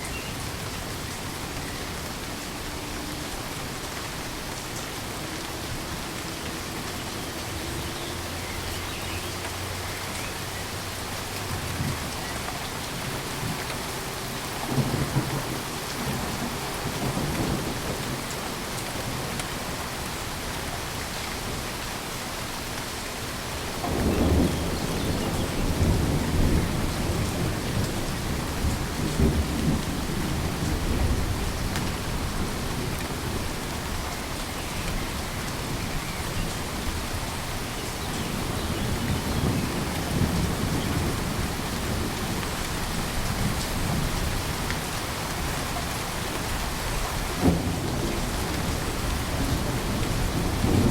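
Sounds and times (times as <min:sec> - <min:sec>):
heavy rain: 0:00.0 - 0:50.9
rolling thunder: 0:23.8 - 0:33.5, 0:47.2 - 0:50.9.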